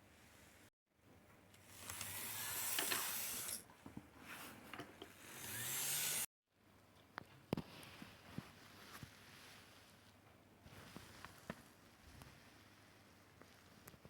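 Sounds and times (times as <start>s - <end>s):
model train motor grinding whir: 1.7s - 3.6s, 5.1s - 6.3s.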